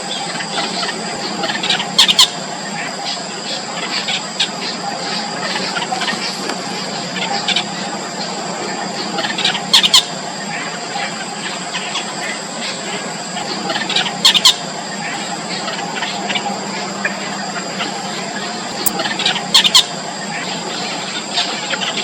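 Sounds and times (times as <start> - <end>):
steady high whine: 10.1 - 21.8
nestlings squealing: 18.7 - 19.0.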